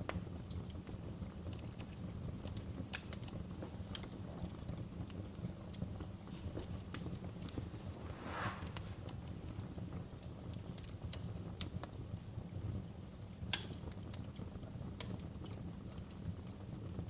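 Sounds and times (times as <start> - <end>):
fire crackling and popping: 0.0 - 17.0
low rumble of flames: 0.0 - 17.0
brief hiss: 7.6 - 9.1.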